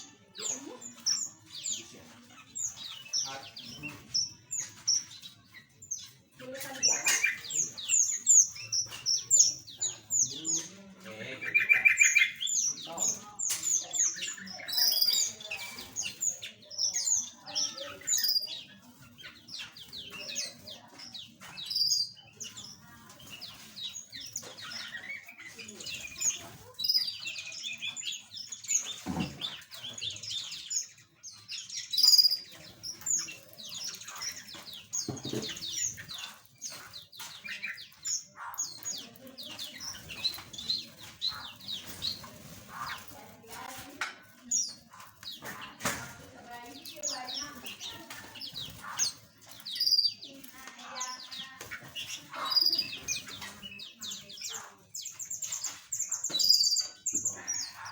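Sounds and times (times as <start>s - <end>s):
small birds chirping and twittering: 0.0s - 57.9s.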